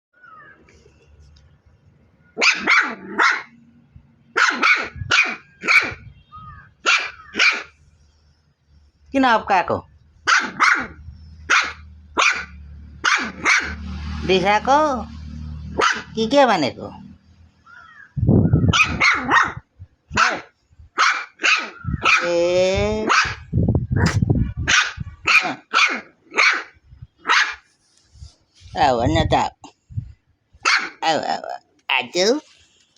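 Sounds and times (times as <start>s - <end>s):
dog barking: 2.4s - 3.6s, 4.3s - 6.0s, 6.8s - 7.8s, 10.3s - 13.9s, 15.7s - 16.2s, 18.6s - 19.6s, 20.2s - 22.3s, 23.0s - 27.7s, 30.6s - 31.0s.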